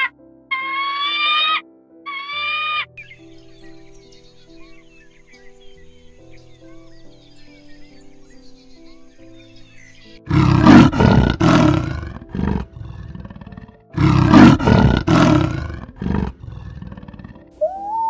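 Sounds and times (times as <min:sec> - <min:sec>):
soft background music: 0:00.0 - 0:18.0
leopard grunt: 0:10.3 - 0:17.6
leopard roaring: 0:10.3 - 0:17.6.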